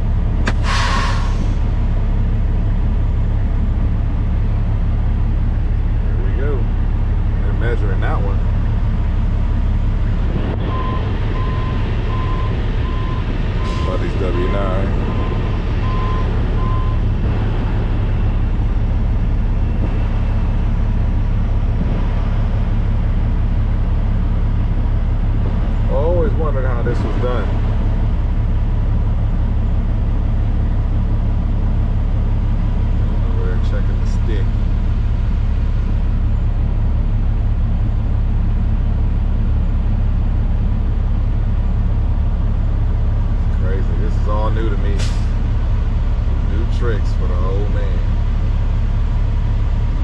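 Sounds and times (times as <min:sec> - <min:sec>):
diesel truck engine rumbling: 0:00.0 - 0:50.0
reversing beeper: 0:10.6 - 0:17.1.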